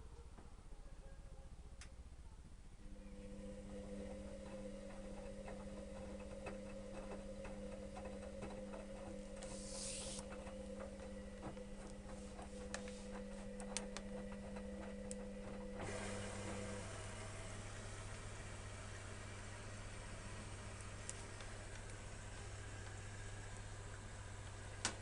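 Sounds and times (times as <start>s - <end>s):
washing machine motor hum: 2.8s - 25.0s
washing machine hiss: 9.4s - 10.3s.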